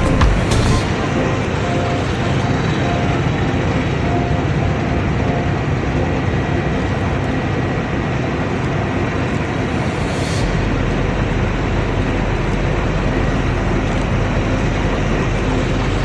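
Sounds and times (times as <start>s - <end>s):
threshing machinery: 0.0s - 1.4s
combine harvester engine rumble: 0.0s - 16.0s.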